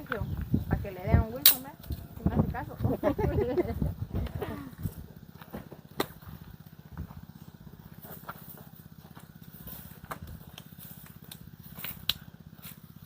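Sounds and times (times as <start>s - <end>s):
pulsing motor hum: 0.0s - 13.0s.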